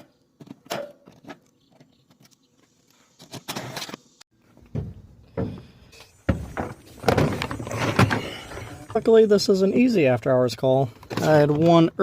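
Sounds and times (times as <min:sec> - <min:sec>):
parts thudding: 0:03.2 - 0:09.0.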